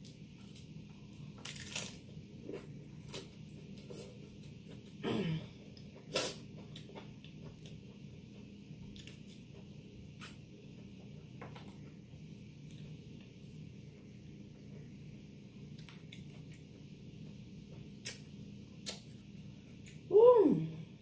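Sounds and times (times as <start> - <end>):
person chewing with wet clicks: 15.6 - 16.7, 17.7 - 20.1.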